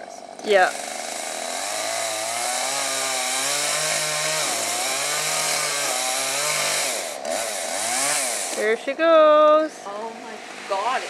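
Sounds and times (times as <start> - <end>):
chainsaw cutting wood: 0.1 - 11.0.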